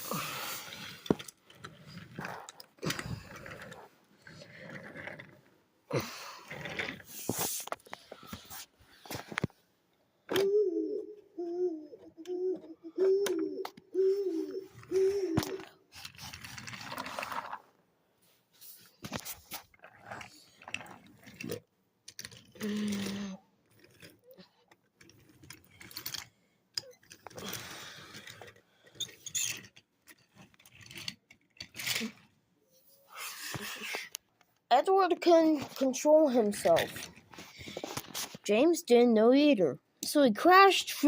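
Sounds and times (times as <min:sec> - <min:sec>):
wooden toy trains rattling on track: 0:00.0 - 0:05.5, 0:06.5 - 0:09.5, 0:14.0 - 0:17.7, 0:18.9 - 0:32.4, 0:34.8 - 0:38.6.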